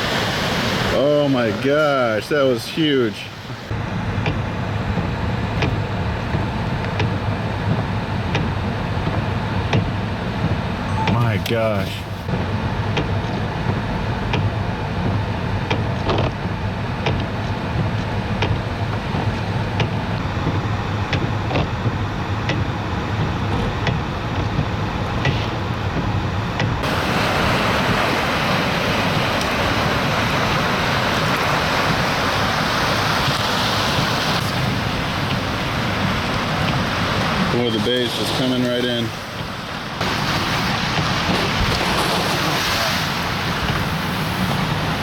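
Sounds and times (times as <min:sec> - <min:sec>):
storm surf rumble: 0:00.0 - 0:45.0
storm wind on microphone: 0:12.0 - 0:38.4.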